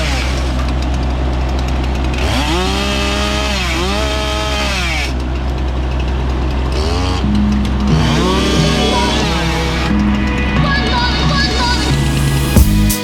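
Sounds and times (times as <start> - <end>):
chainsaw revving: 0.0 - 10.0.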